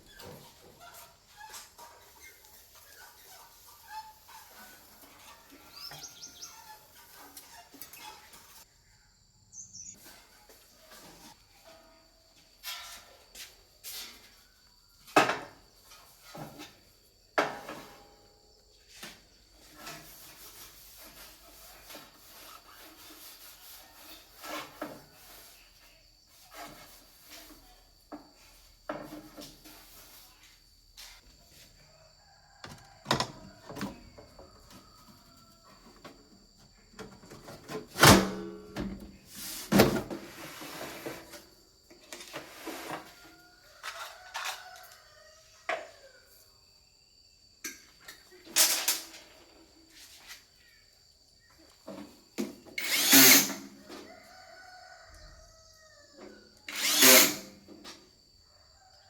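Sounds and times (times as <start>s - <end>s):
rubbing or scraping: 19.0s - 27.8s, 39.3s - 41.5s, 42.1s - 43.2s, 56.7s - 57.6s.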